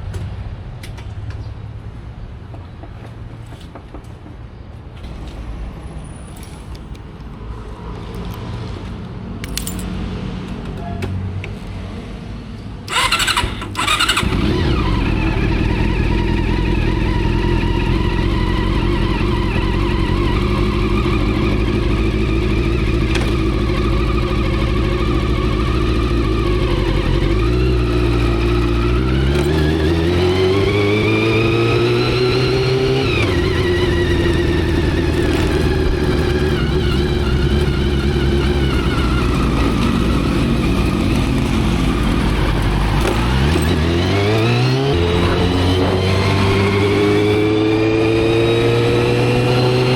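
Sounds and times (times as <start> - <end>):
motorcycle engine starting and revving: 12.9 - 49.9.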